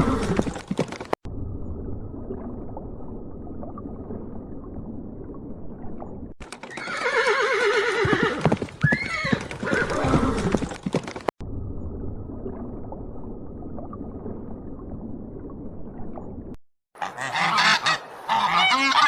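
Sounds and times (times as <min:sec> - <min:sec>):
horse whinnying: 0:06.6 - 0:10.7.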